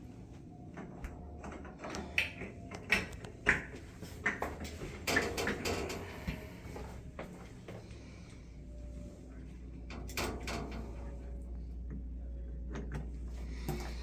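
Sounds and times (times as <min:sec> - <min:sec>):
hardware rattling and scraping: 0:01.4 - 0:06.9.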